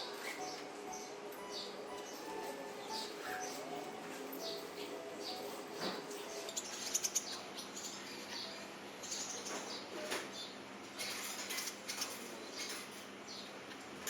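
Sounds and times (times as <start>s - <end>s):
small birds chirping: 4.4s - 13.6s.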